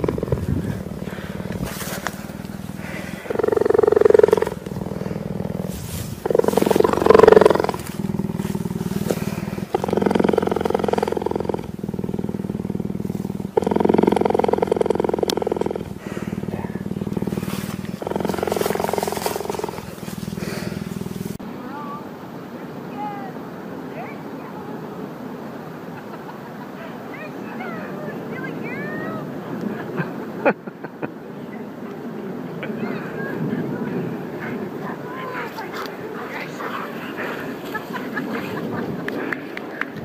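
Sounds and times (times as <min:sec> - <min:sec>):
cheetah purring: 0:00.0 - 0:21.4, 0:34.2 - 0:39.5.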